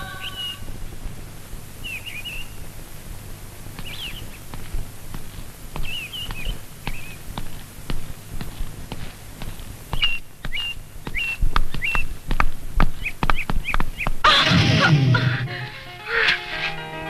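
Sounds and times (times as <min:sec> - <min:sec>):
birds twittering: 0:00.0 - 0:14.2
dull thumps: 0:03.7 - 0:15.6
low hum: 0:14.3 - 0:17.0.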